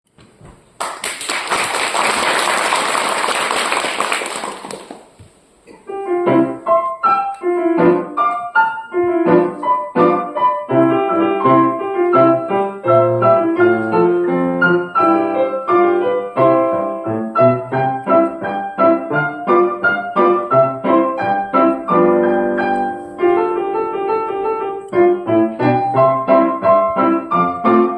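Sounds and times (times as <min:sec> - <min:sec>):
audience clapping: 0:00.7 - 0:05.2
piano duet: 0:00.8 - 0:27.9.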